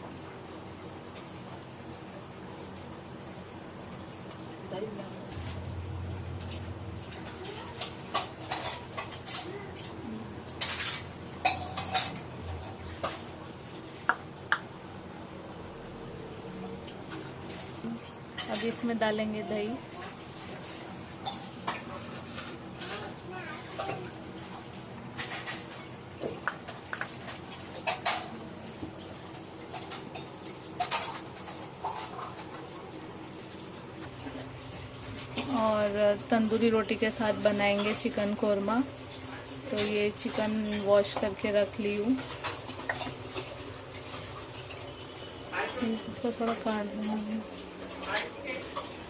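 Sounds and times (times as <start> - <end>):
utensils clinking against bowl: 6.4 - 13.3, 17.1 - 19.0, 20.6 - 24.2, 25.1 - 49.0
spoon clinking and scraping bowl: 7.8 - 13.2, 21.2 - 22.5, 37.6 - 38.2.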